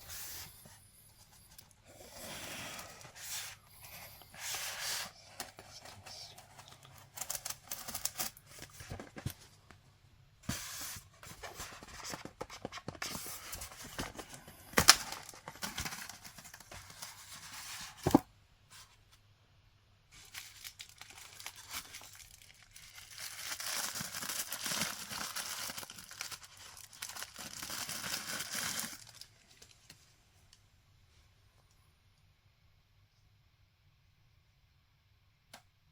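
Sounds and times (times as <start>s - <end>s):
packaging tearing and crinkling: 6.6s - 9.1s, 13.7s - 17.0s, 20.2s - 29.7s.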